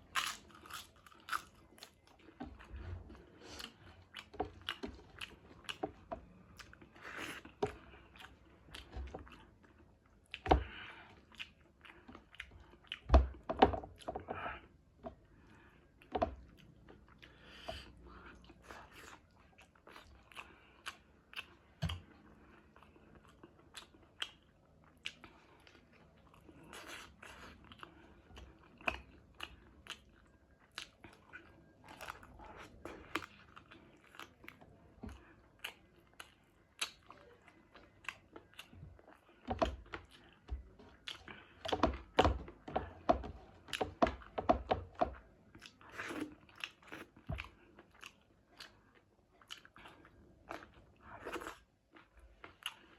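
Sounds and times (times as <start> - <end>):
food crunching: 0.0 - 9.6
person chewing food: 0.0 - 52.9.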